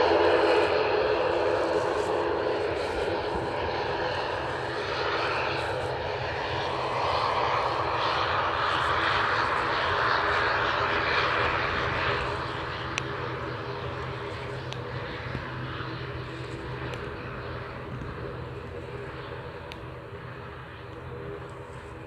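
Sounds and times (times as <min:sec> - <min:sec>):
airliner engines running: 0:00.0 - 0:22.0.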